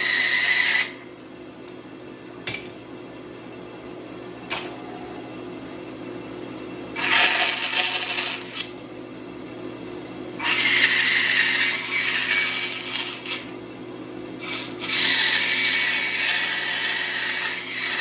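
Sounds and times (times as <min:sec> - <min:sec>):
bandsaw blade cutting wood: 0:00.0 - 0:01.0, 0:07.0 - 0:08.7, 0:10.4 - 0:13.5, 0:14.4 - 0:18.0
bandsaw humming: 0:00.0 - 0:01.0, 0:06.9 - 0:08.8, 0:10.4 - 0:13.5, 0:14.4 - 0:18.0.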